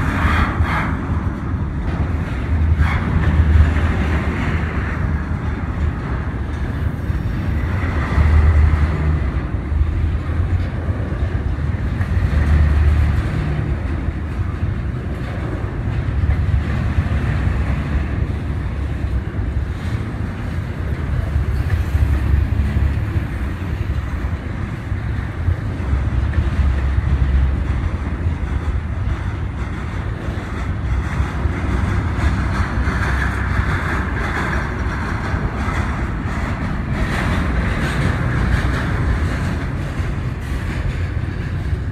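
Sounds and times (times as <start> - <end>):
train rumbling past: 0.0 - 41.9
wind buffeting microphone: 0.0 - 41.9.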